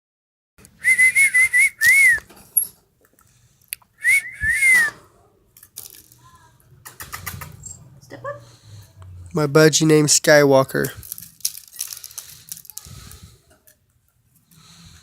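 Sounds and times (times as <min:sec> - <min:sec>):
whistling: 0:00.8 - 0:02.3, 0:04.0 - 0:05.0.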